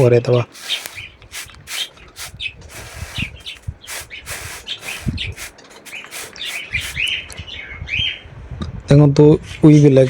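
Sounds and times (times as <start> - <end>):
scraping strokes: 0.0 - 7.2
budgerigars chirping: 0.5 - 8.2.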